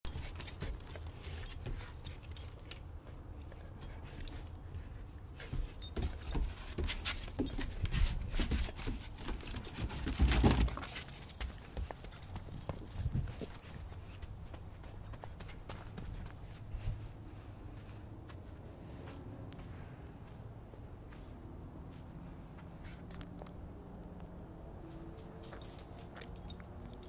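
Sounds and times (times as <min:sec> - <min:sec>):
dogs scuffling and scrabbling: 0:00.1 - 0:16.6.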